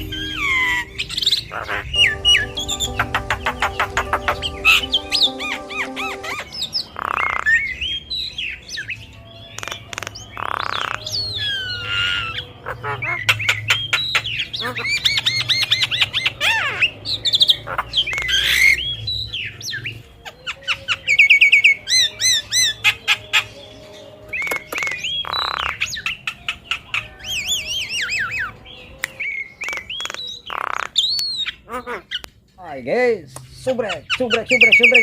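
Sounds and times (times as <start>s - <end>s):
bird singing chirps and whistles: 17.2s - 31.6s, 34.0s - 35.0s.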